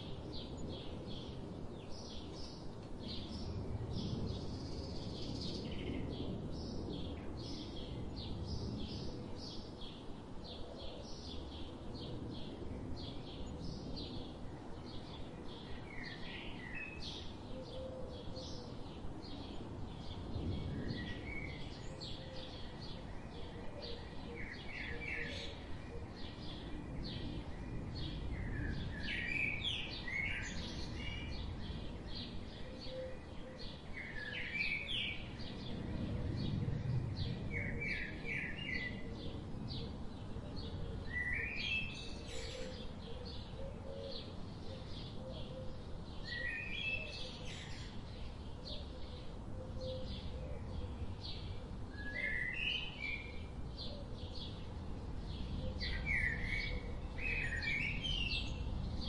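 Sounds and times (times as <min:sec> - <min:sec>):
low outdoor rumble: 0:35.2 - 0:41.1.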